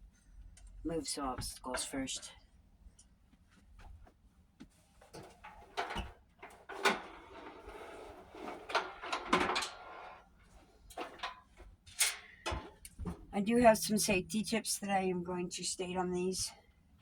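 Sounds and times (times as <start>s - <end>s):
scraping and rustling: 4.6s - 13.3s
objects knocking and thudding: 5.0s - 13.4s.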